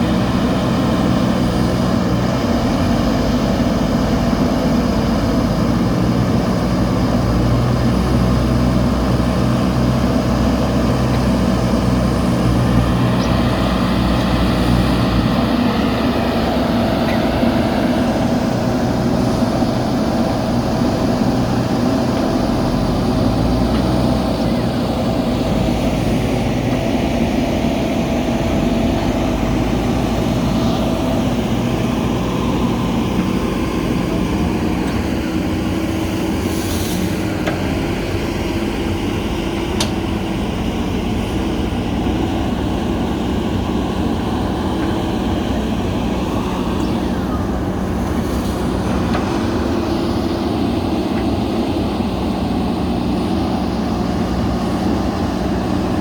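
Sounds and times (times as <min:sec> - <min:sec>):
diesel engine running: 0:00.0 - 0:56.0
brief hissing: 0:36.5 - 0:37.2.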